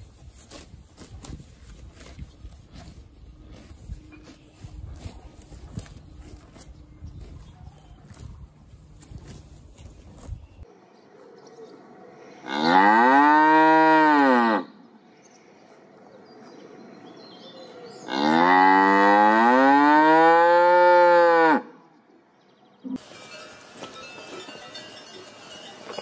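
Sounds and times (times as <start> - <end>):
cow mooing: 12.5 - 14.7, 18.1 - 21.7.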